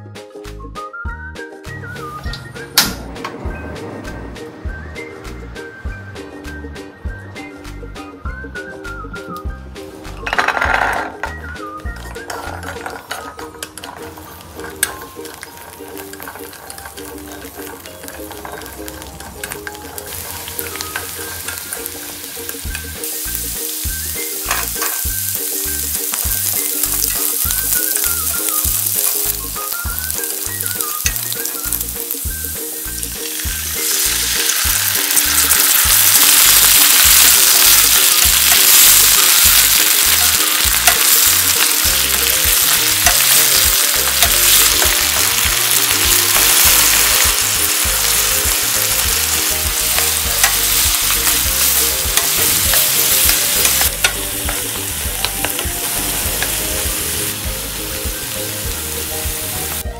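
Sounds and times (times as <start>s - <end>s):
garlic sizzling in oil: 10.0s - 59.9s
stirring in pan: 12.1s - 57.5s
sauce bubbling in pan: 14.0s - 57.3s.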